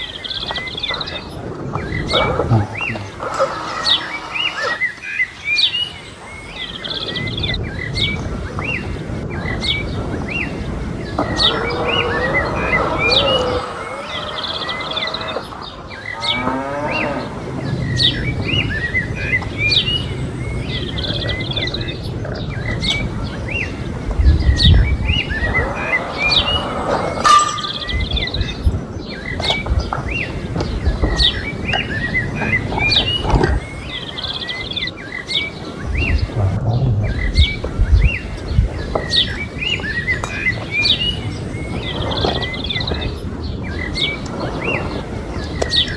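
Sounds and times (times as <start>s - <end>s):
birds chirping: 0.0s - 45.9s
cow mooing: 2.5s - 4.8s, 11.4s - 17.6s, 25.4s - 28.0s.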